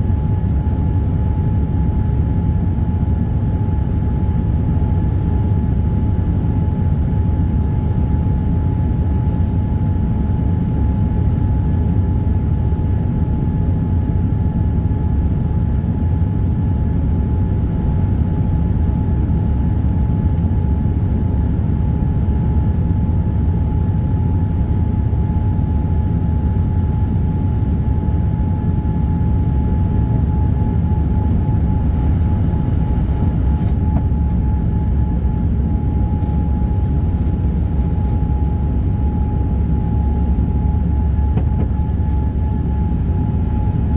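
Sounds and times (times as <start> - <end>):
airliner cabin engine drone: 0.0 - 43.9
thin steady whine: 28.6 - 43.9.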